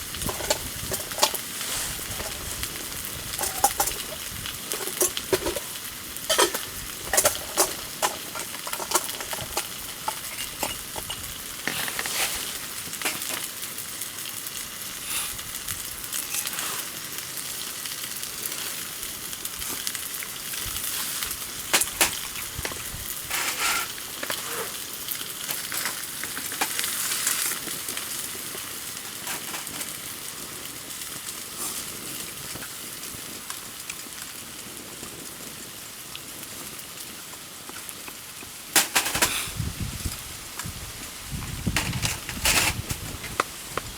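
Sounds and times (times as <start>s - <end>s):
campfire hissing and crackling: 0.0s - 43.9s.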